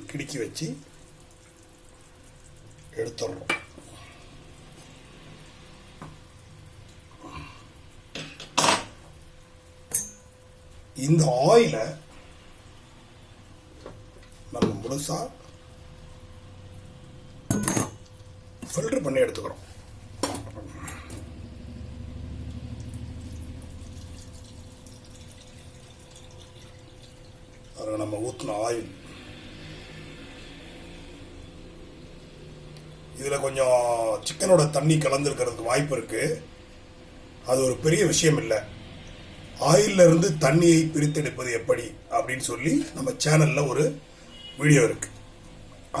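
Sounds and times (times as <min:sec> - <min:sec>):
oil pouring through a filter: 0:20.9 - 0:31.2.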